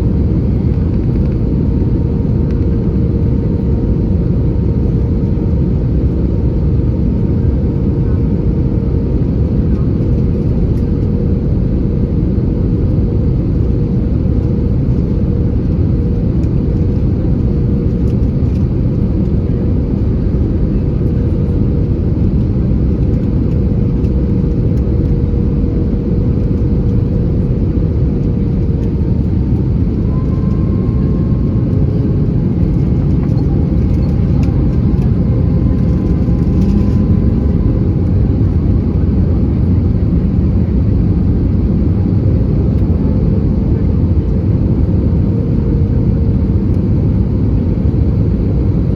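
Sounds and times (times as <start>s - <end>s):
aircraft engines rumbling in cabin: 0.0s - 48.9s
faint whining tones: 28.7s - 38.5s.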